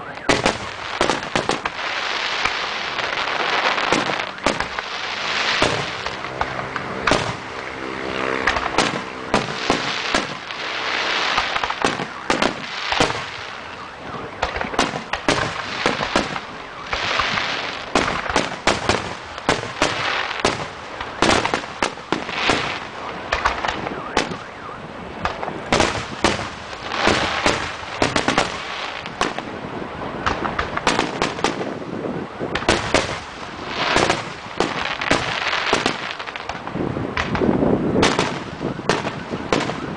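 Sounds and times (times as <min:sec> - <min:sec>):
fireworks bangs: 0:00.0 - 0:39.9
fireworks hissing: 0:00.5 - 0:07.6, 0:08.4 - 0:13.8, 0:14.7 - 0:23.6.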